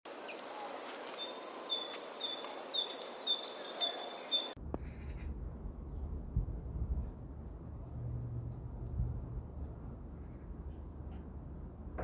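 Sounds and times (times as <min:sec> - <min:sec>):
steady outdoor hiss: 0:00.1 - 0:12.0
low rumble: 0:04.6 - 0:12.0.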